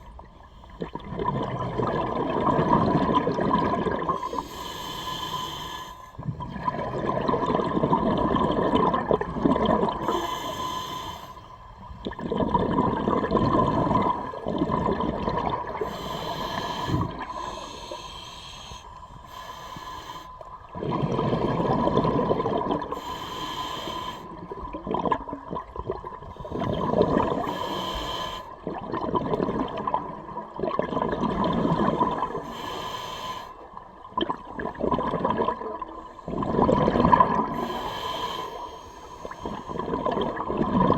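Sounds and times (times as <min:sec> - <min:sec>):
exhaled bubbles rushing: 0:00.8 - 0:04.4, 0:06.2 - 0:10.1, 0:12.0 - 0:15.9, 0:20.7 - 0:23.0, 0:24.5 - 0:27.5, 0:28.6 - 0:32.4, 0:34.0 - 0:37.7, 0:39.7 - 0:40.9
regulator inhale hiss: 0:04.2 - 0:06.2, 0:10.0 - 0:11.6, 0:15.8 - 0:20.6, 0:22.9 - 0:24.5, 0:27.4 - 0:28.6, 0:32.3 - 0:33.8, 0:37.5 - 0:40.0.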